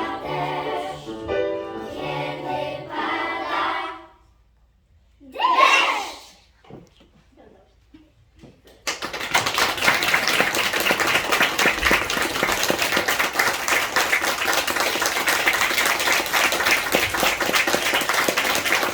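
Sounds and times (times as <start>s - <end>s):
audience applause: 8.9s - 18.9s.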